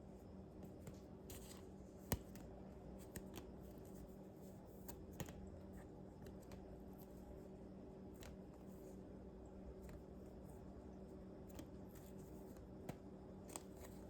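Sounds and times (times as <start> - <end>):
low steady hum: 0.0 - 14.0
plastic binder pages rustling: 11.5 - 14.0.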